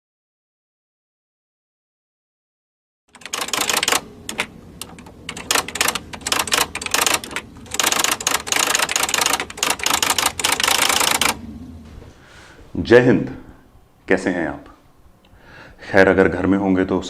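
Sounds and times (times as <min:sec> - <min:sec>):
typewriter keys clacking: 0:03.1 - 0:11.4.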